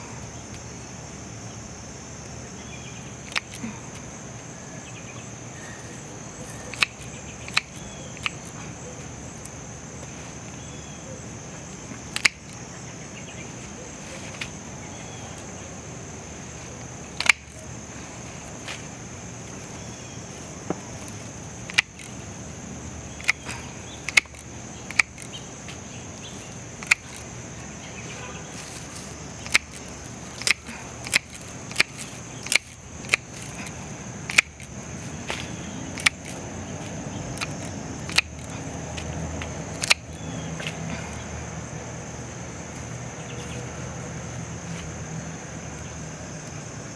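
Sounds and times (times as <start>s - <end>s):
crickets chirping: 0.0s - 46.9s
sharp snaps: 5.8s - 9.6s, 11.7s - 12.7s, 16.7s - 41.5s.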